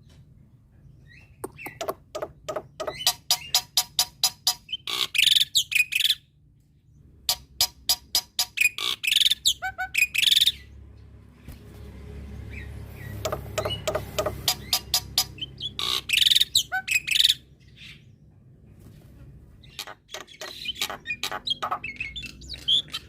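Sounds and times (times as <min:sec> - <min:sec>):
bird singing clicking notes: 0:01.2 - 0:03.6, 0:13.2 - 0:14.8, 0:19.8 - 0:23.0.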